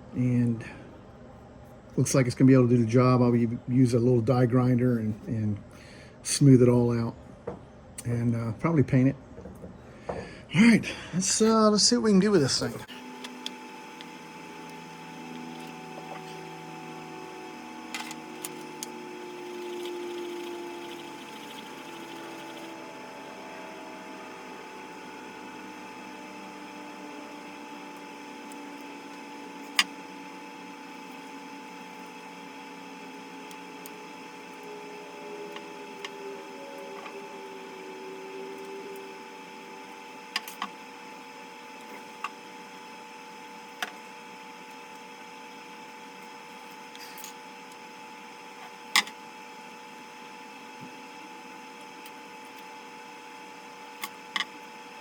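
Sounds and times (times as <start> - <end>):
low hum: 14.0 - 42.2.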